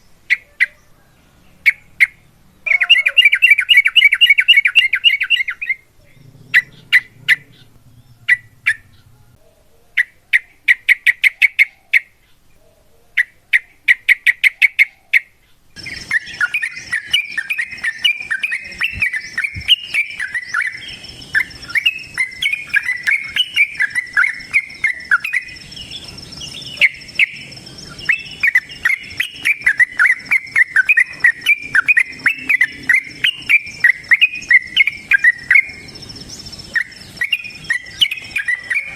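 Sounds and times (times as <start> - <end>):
bulbul chattering song: 1.6 - 9.1, 15.8 - 38.9
steady high whine and hiss: 15.8 - 38.9.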